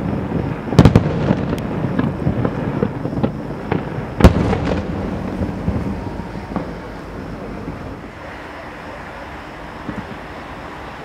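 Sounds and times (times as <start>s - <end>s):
firework shells bursting: 0.0s - 8.1s
fireworks rumble and crackle: 0.0s - 11.0s.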